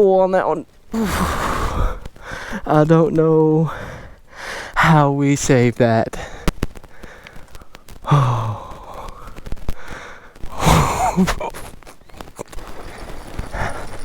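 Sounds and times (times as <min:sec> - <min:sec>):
man sighing and exhaling: 0:00.9 - 0:02.7, 0:06.2 - 0:11.6
sharp clicks: 0:06.4 - 0:08.1.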